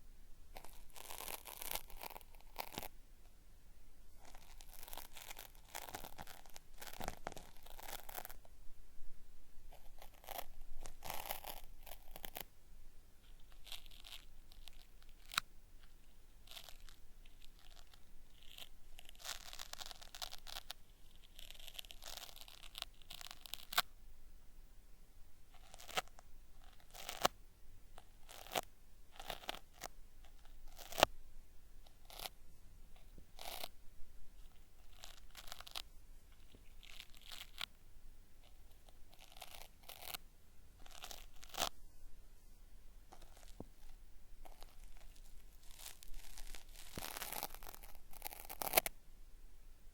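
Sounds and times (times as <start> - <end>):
cotton swab crackling on microphone: 43.1 - 48.9.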